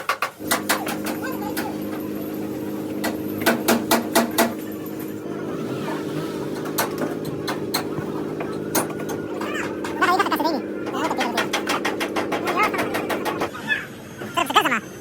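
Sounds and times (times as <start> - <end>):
steady low hum: 0.4 - 13.5
sharp knocks: 3.0 - 4.6, 6.5 - 10.2, 10.8 - 13.5.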